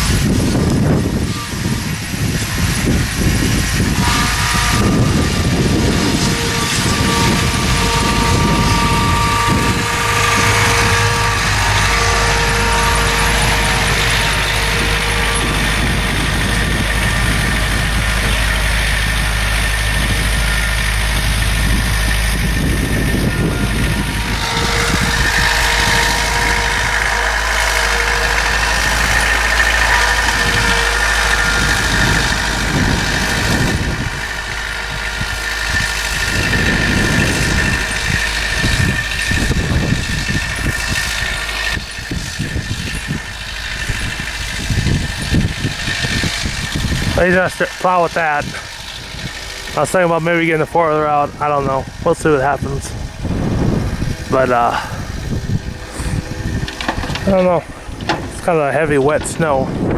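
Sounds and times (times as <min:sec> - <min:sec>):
high whine: 0:00.0 - 0:59.9
loader engine running: 0:00.0 - 0:59.9.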